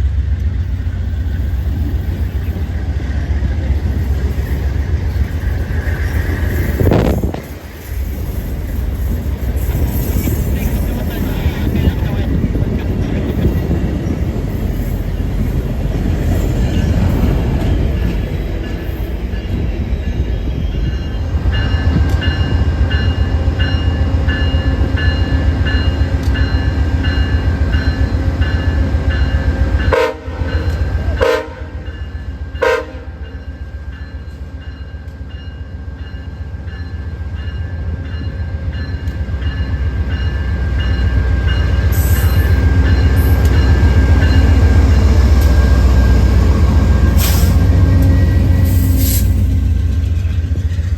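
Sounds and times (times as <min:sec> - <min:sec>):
train rumbling: 0:00.0 - 0:50.9
train horn blasts: 0:29.8 - 0:33.4.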